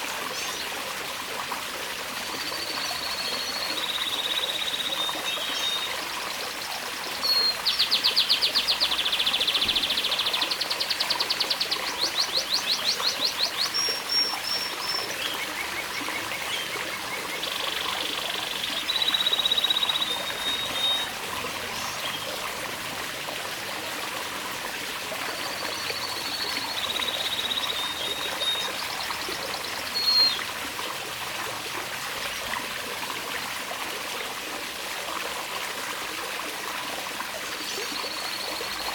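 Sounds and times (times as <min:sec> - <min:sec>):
water trickling: 0:00.0 - 0:38.9
canary singing trills: 0:07.3 - 0:21.1.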